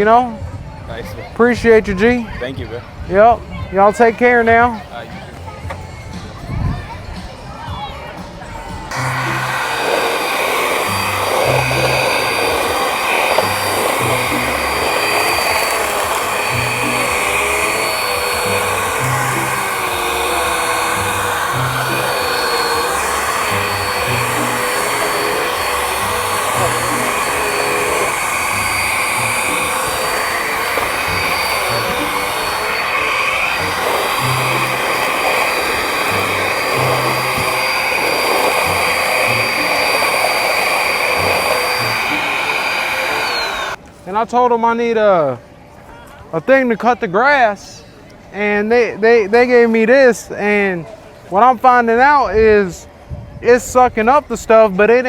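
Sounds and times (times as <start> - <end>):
vacuum cleaner motor whining: 8.9 - 43.8
background music with bass: 10.7 - 39.8.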